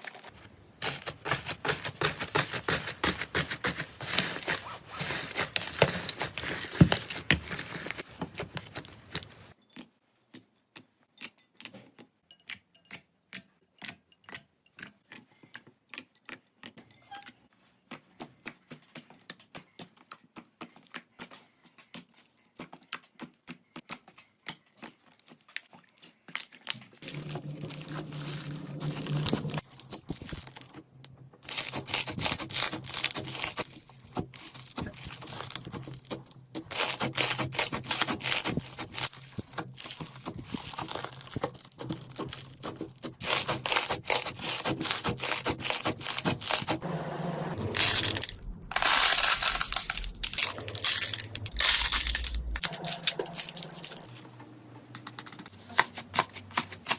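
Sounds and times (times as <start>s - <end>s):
low hum: 46.8s - 54.1s.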